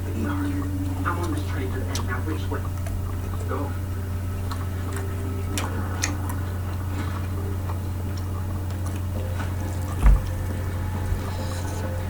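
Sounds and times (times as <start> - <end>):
steady low hum: 0.0 - 12.0
dull thump: 10.0 - 10.6.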